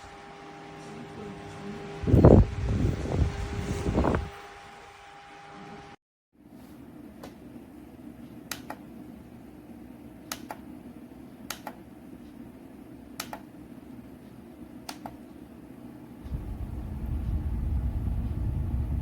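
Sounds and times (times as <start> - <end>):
small fan humming: 0.0 - 6.0, 6.8 - 19.0
sharp clicks: 10.3 - 10.6, 11.5 - 11.8, 13.2 - 13.5.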